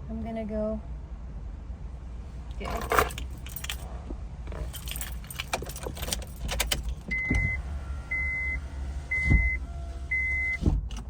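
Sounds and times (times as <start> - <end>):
keys jangling: 2.6 - 3.9, 4.6 - 7.1
car warning chime beeping: 7.1 - 10.6.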